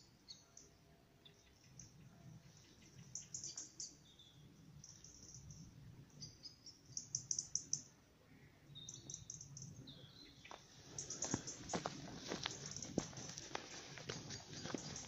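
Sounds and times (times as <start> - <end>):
songbirds chirping: 0.0 - 15.0
faint low rustle: 10.5 - 15.0.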